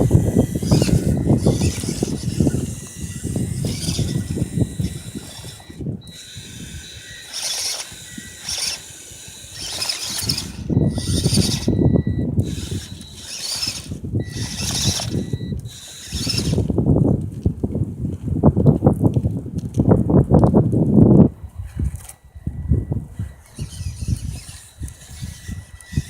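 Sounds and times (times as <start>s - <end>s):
small electric motor whining: 0.0s - 17.1s, 21.4s - 26.0s
toy truck wheels rattling on ground: 0.0s - 17.5s, 23.1s - 26.0s.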